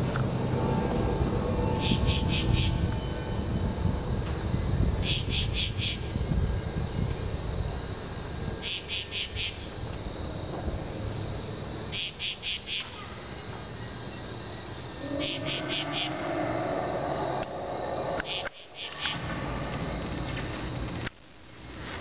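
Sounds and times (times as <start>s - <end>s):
low rumble: 0.0s - 5.3s, 14.9s - 20.8s
cricket chirping: 0.0s - 21.7s.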